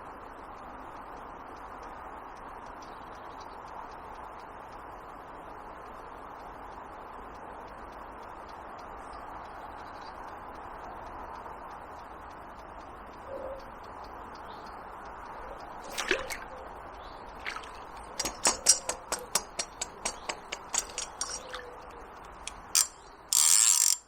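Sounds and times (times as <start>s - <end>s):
run of light clicks: 12.5s - 24.0s
river water flowing: 15.1s - 24.0s.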